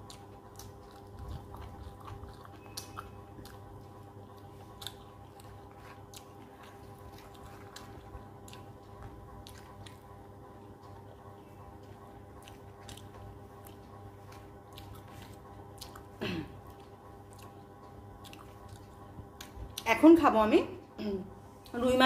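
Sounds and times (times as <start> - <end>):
quiet chewing with wet clicks: 0.0 - 20.0
low electrical hum: 0.0 - 22.0.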